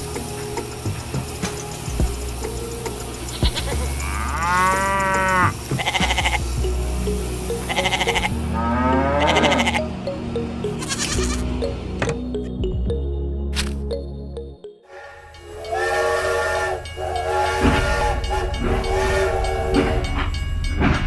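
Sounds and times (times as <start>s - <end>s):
background music: 0.0s - 21.0s
animal bleating: 3.3s - 6.5s, 7.7s - 9.9s, 10.8s - 11.5s.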